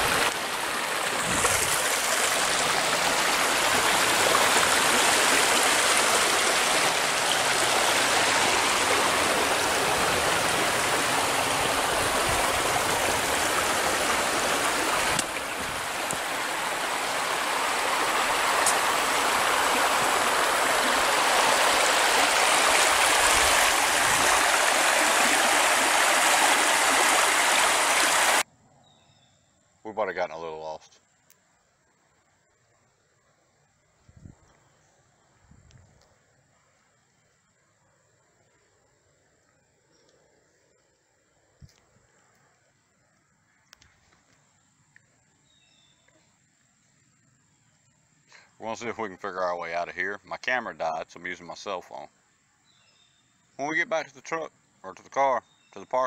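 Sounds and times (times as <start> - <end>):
water rushing in a creek: 0.0 - 28.4.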